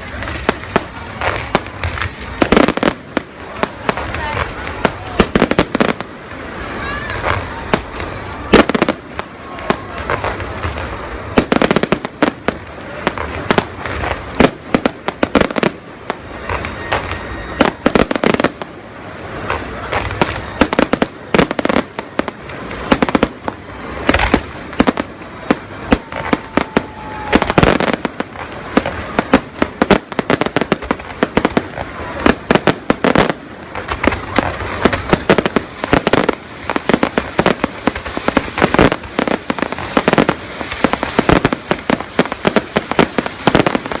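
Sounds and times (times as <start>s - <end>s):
fireworks bangs and crackles: 0.0s - 44.0s
firework whistle: 13.4s - 44.0s.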